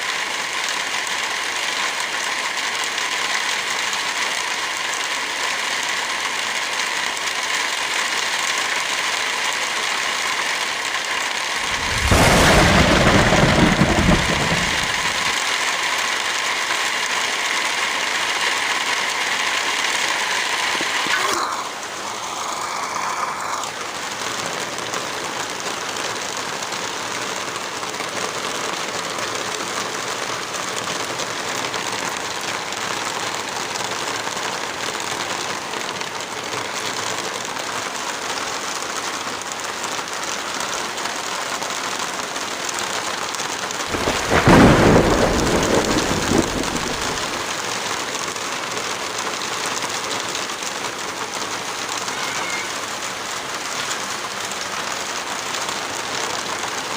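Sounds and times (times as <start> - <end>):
heavy rain falling: 0.0 - 56.9
deep rumbling burst: 11.6 - 15.4, 43.9 - 47.4.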